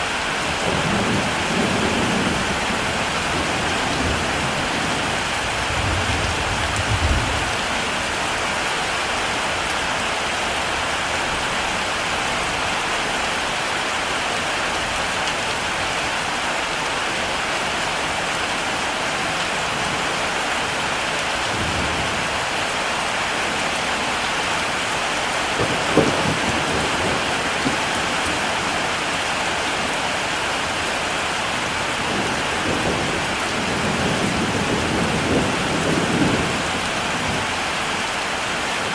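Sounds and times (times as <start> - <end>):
heavy rain falling: 0.0 - 38.9
thunder rumbling: 0.5 - 7.8, 25.4 - 29.2, 31.6 - 37.7.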